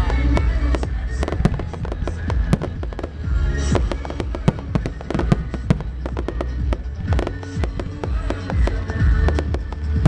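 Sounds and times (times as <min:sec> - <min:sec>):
deep continuous rumble: 0:00.0 - 0:10.0.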